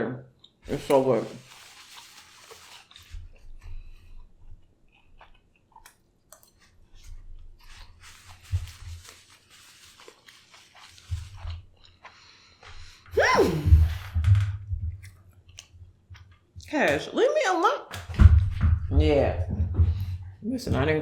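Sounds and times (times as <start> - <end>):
person chewing: 0.3 - 14.0, 14.9 - 16.5.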